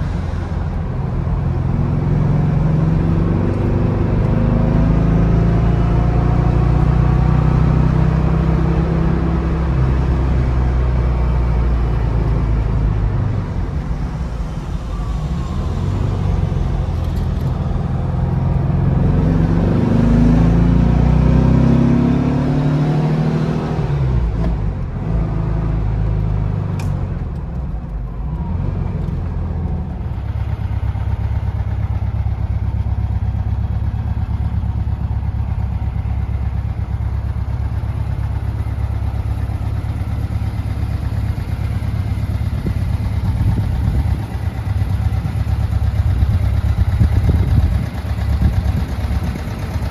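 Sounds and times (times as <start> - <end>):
car engine revving and idling: 0.0 - 49.9.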